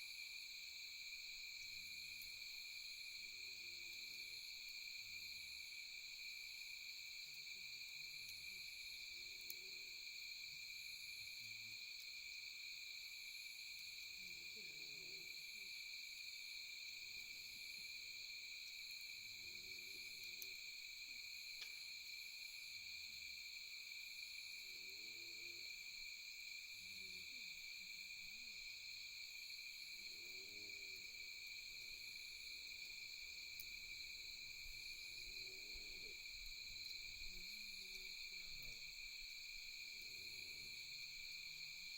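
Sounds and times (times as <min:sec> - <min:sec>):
crickets and insects trilling: 0:00.0 - 0:41.9
faint clicks: 0:21.6 - 0:21.9.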